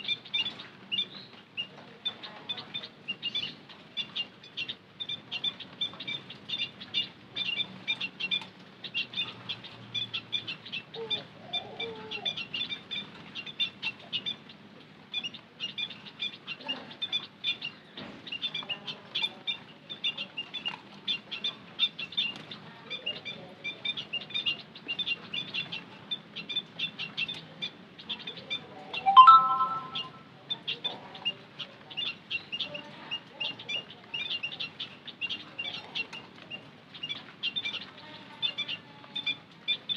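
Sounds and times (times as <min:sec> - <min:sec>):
flock of birds twittering: 0:00.0 - 0:39.9
lower bird call: 0:29.0 - 0:30.2.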